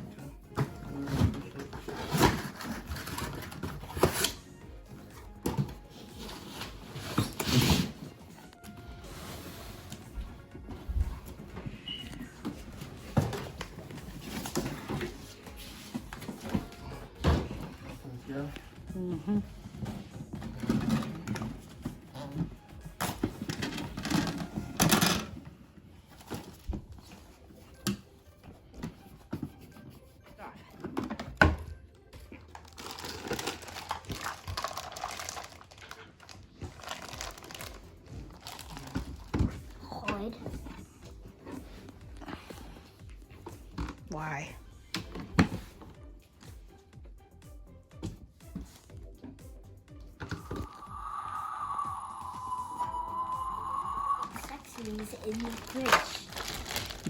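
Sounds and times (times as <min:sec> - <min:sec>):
packaging rustling: 0:32.6 - 0:39.3, 0:54.3 - 0:57.0.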